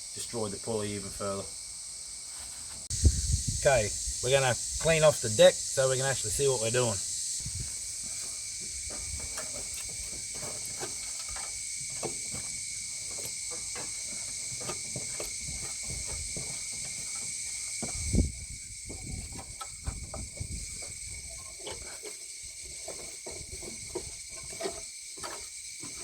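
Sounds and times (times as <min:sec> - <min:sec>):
high-pitched hiss: 0:00.0 - 0:26.0
scraping mower deck: 0:07.7 - 0:26.0.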